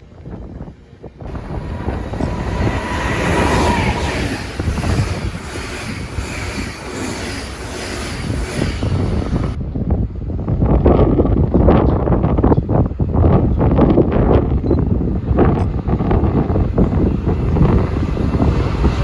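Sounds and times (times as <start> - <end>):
train wheels on rails: 1.3 - 9.6, 15.5 - 19.0.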